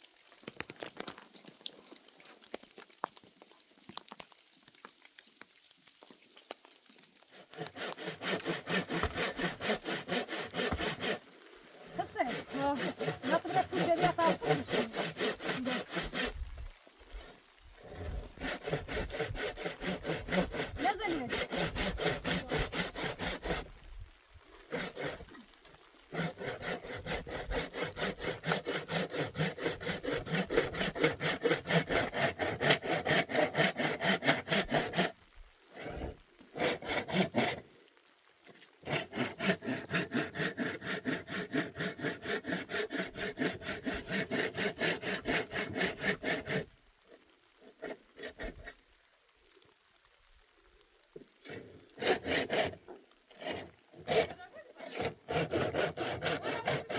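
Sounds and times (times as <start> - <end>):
hand saw cutting wood: 7.3 - 11.2, 11.8 - 16.4, 17.1 - 23.7, 24.7 - 25.3, 26.1 - 35.2, 35.8 - 37.6, 38.8 - 46.7, 47.6 - 48.8, 51.5 - 56.9.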